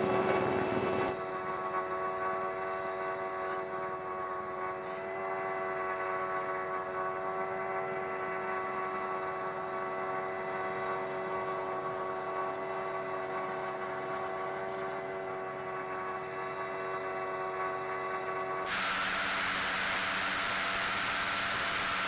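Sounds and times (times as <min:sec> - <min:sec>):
mechanical hum: 0:00.0 - 0:22.0
hiss: 0:18.7 - 0:22.0.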